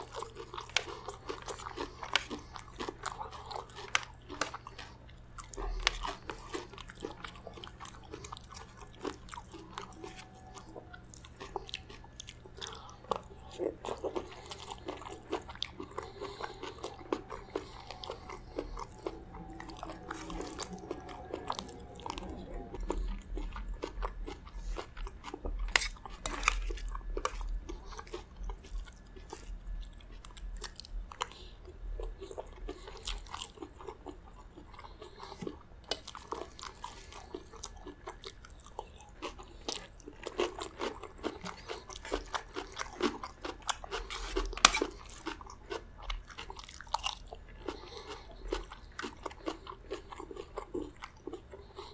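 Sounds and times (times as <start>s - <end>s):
chewing and crunching: 0.0s - 51.9s.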